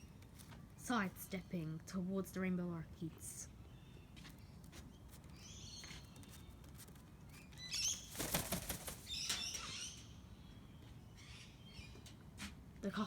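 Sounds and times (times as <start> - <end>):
parrot wings flapping: 7.8 - 9.5.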